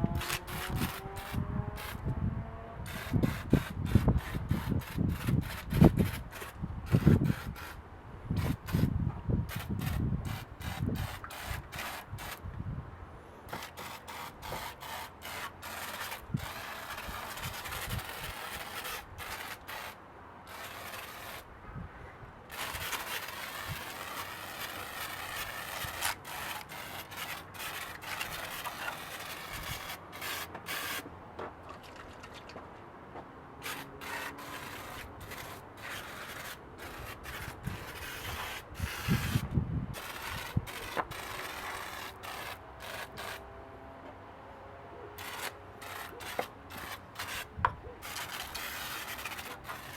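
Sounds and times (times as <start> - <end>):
hissing spray bursts: 22.5 - 31.0.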